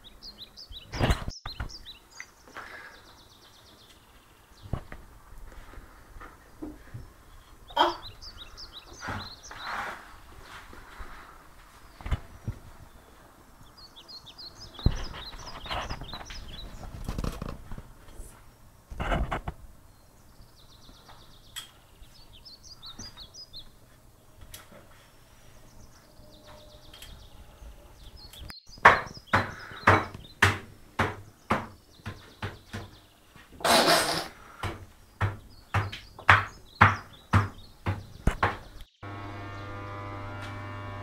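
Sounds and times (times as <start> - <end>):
small bird chirping: 0.0 - 4.8, 6.6 - 10.6, 11.8 - 18.7, 19.8 - 30.4
sharp knocks: 28.8 - 33.0, 33.6 - 38.8.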